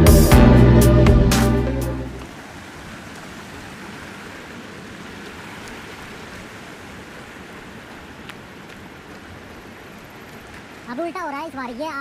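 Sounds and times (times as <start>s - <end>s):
guitar music: 0.0s - 2.3s
waterfall rushing: 0.0s - 12.0s.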